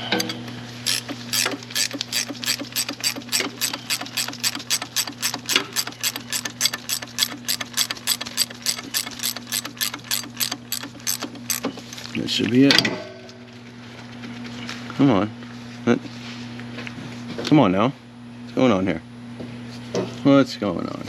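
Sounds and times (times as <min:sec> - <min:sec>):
ratchet wrench clicking: 0:00.9 - 0:11.8.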